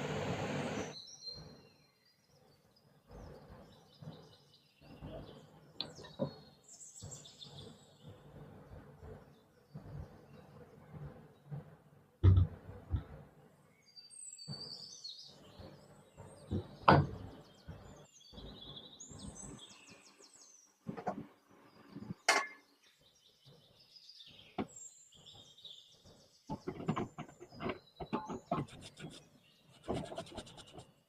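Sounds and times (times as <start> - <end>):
birds chirping: 0.0 - 11.6, 12.4 - 31.0
knocks and clicks on metal parts: 26.5 - 29.0
rubbing or scraping strokes: 26.6 - 31.0.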